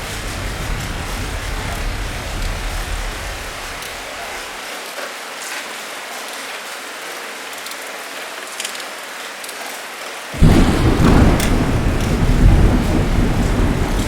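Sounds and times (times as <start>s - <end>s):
thunder rumbling: 0.0s - 4.6s, 10.4s - 14.0s
rain hiss: 0.0s - 14.0s
drips ticking: 10.4s - 14.0s.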